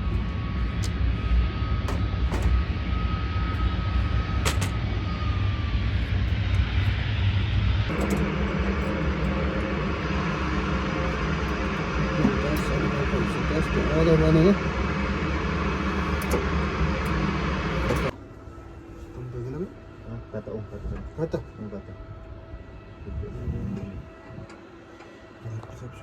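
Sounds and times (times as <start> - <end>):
aircraft engine rumble: 0.0 - 26.0
high engine whine: 0.0 - 26.0.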